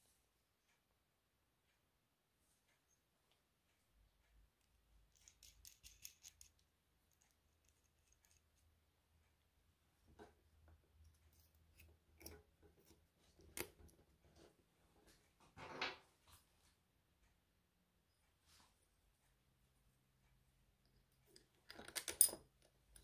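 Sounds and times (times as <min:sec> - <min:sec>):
metallic clicks from handling cable: 0:05.1 - 0:08.4, 0:21.3 - 0:23.0.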